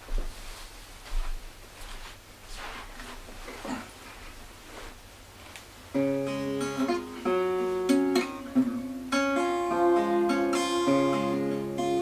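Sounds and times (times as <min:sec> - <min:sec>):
acoustic guitar chords: 0:05.9 - 0:12.0.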